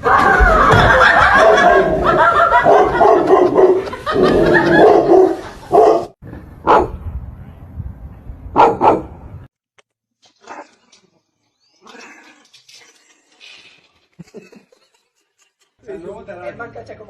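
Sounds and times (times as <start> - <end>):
dog barking sharply: 4.8 - 6.9, 8.6 - 9.1.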